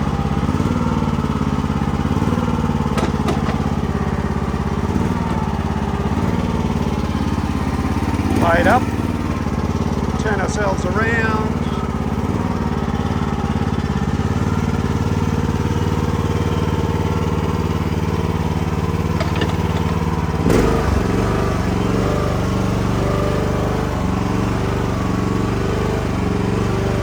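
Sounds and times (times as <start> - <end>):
excavator engine running: 0.0 - 27.0
machine clunk: 2.9 - 3.8, 19.0 - 21.2.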